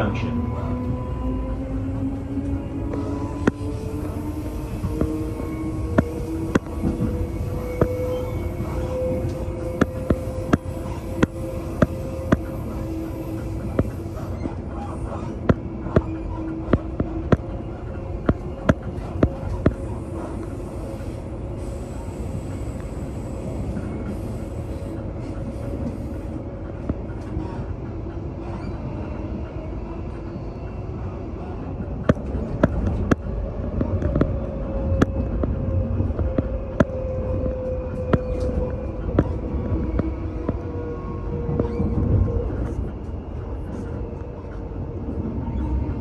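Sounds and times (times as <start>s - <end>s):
train wheels rumbling on track: 0.0s - 46.0s
humming tone: 0.3s - 25.2s.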